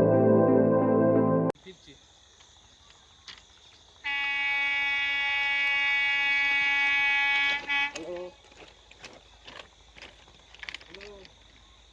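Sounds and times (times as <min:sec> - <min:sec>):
locomotive horn blast: 0:04.0 - 0:08.1.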